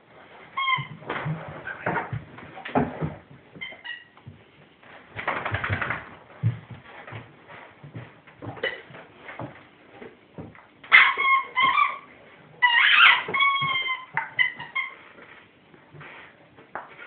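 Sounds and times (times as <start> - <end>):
squeaky dog toy squeaking: 0.6 - 1.0, 10.9 - 15.0.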